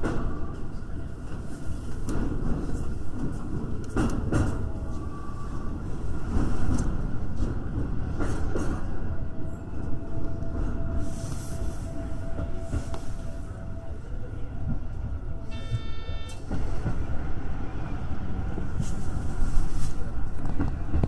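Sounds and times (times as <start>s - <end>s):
clacks over rail joints: 0.0s - 5.0s, 6.3s - 9.0s
train wheels rumbling on rail: 0.0s - 21.0s
faint high tone: 15.4s - 16.4s.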